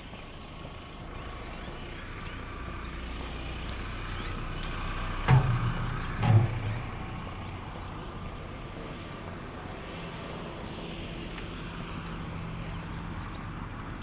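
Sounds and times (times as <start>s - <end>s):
vehicle engine rumbling: 0.0s - 14.0s
heavy thumps: 5.3s - 7.4s.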